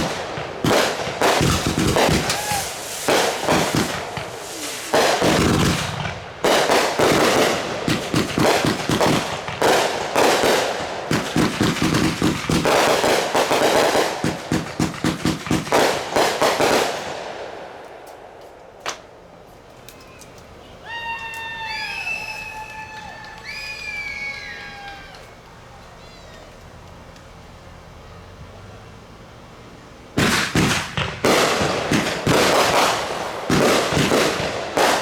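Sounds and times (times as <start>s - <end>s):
fireworks bangs and crackle: 0.0s - 19.0s, 30.2s - 35.0s
crowd voices: 2.2s - 5.3s, 19.8s - 27.0s.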